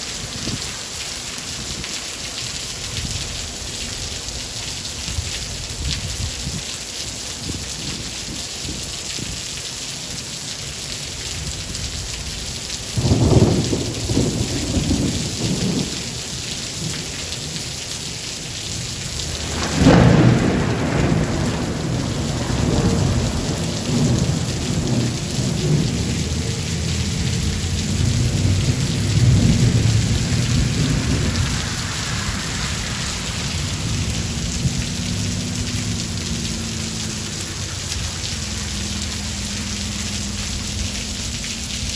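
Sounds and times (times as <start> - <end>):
heavy rain: 0.0 - 41.9
rolling thunder: 12.9 - 17.6, 18.7 - 41.9
thunder clap: 13.0 - 17.5, 18.7 - 41.9.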